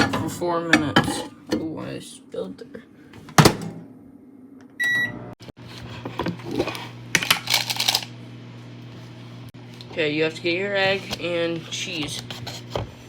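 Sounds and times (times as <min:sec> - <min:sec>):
microwave humming: 0:00.0 - 0:13.0
keypad beep: 0:04.8 - 0:05.1.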